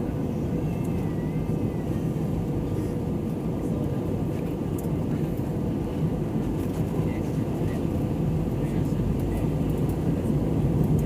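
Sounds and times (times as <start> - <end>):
airliner engine and airflow drone: 0.0 - 11.0.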